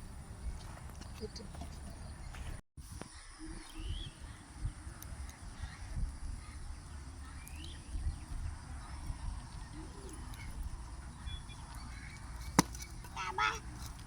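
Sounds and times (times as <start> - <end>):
faint bird chirps: 3.1 - 12.6.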